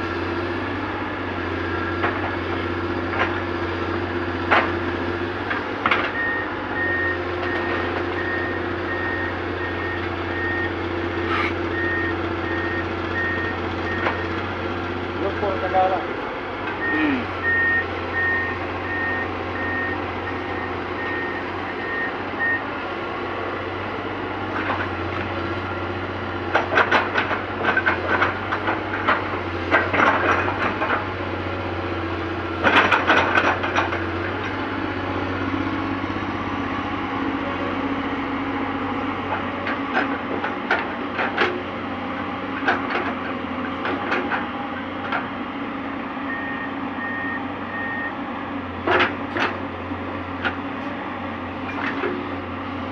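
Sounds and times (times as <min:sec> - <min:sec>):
diesel engine running: 0:00.0 - 0:52.9
reversing alarm beeping: 0:06.2 - 0:10.7, 0:11.7 - 0:14.4, 0:16.8 - 0:22.7, 0:46.2 - 0:48.2
clattering knocks and scraping: 0:26.5 - 0:31.1, 0:32.6 - 0:34.6, 0:42.6 - 0:45.4.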